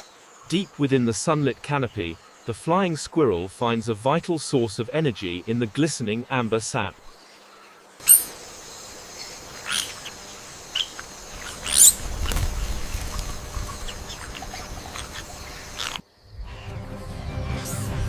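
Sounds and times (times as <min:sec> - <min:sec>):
insect-like drone: 0:06.8 - 0:18.0
high bird-like chirps: 0:08.0 - 0:08.4, 0:09.2 - 0:12.4.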